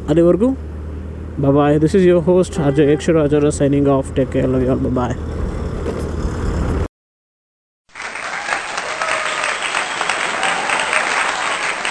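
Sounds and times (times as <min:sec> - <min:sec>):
applause: 0:07.9 - 0:11.9.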